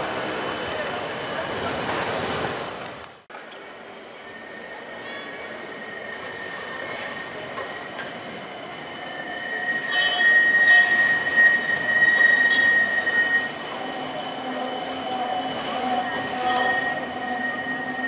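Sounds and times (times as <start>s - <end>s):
tram rolling noise: 0.0s - 18.0s
tram wheels squealing: 3.7s - 18.0s.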